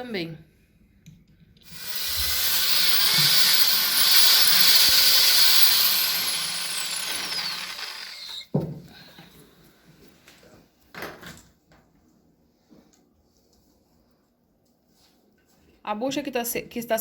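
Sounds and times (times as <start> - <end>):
electric drill boring into cement: 1.6 - 8.5.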